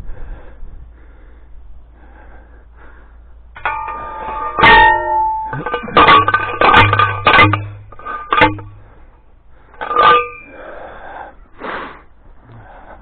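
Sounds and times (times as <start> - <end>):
post driver clanging on metal post: 3.6 - 8.9, 9.8 - 10.6.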